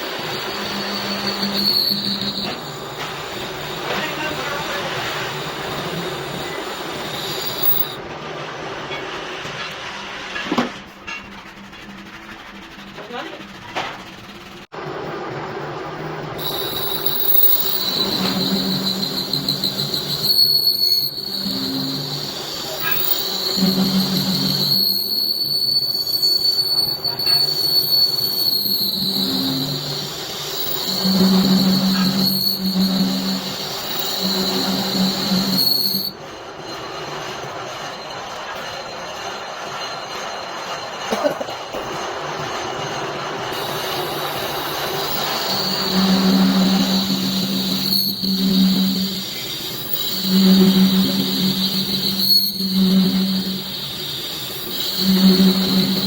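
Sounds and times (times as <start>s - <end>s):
lathe cutting tool squealing: 0.0s - 8.0s, 16.4s - 41.2s, 43.4s - 56.0s.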